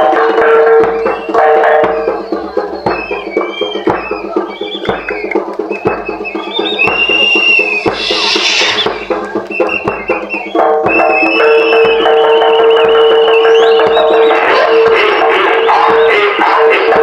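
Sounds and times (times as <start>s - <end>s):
percussion striking steady beat: 0.0s - 17.0s
held pitched notes: 5.9s - 10.8s.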